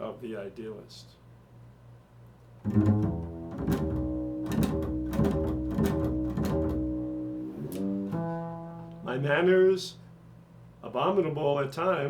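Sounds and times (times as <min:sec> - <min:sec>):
string instrument plucking notes: 0:02.6 - 0:09.5.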